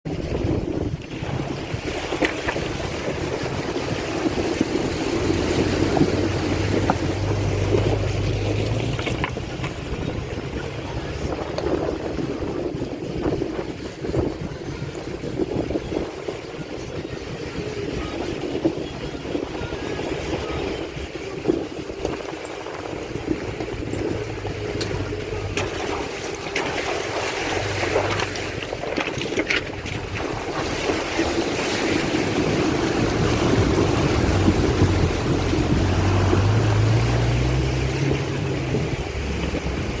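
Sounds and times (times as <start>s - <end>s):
wind buffeting microphone: 0.0s - 40.0s
rushing river water: 0.1s - 40.0s
low hum rising in pitch: 32.0s - 40.0s.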